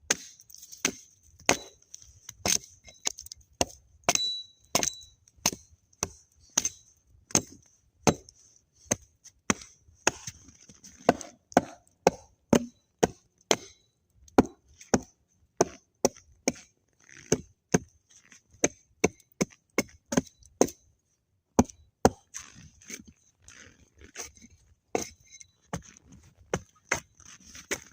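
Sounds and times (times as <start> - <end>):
axe chopping wood: 0.0 - 8.3, 8.9 - 10.4, 11.0 - 17.9, 18.6 - 20.8, 21.6 - 22.3, 25.0 - 25.9.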